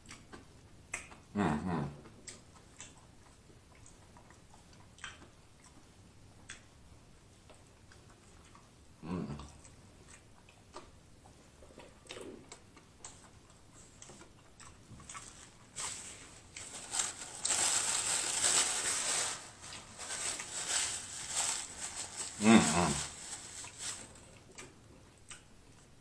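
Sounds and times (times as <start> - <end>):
wet chewing: 0.0 - 1.3, 2.0 - 6.7, 7.4 - 8.8, 9.4 - 16.7, 23.4 - 26.0.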